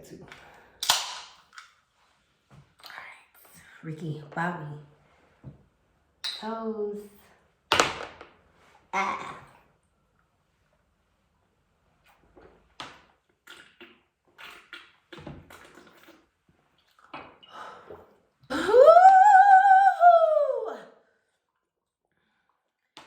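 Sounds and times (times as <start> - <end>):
person crying out loudly: 18.5 - 20.8.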